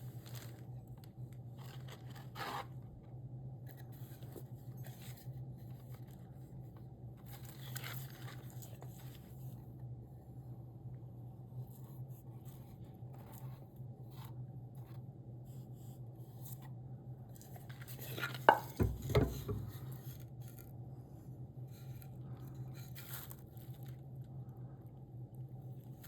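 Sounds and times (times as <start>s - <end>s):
hand tools scraping wood: 18.5s - 19.8s.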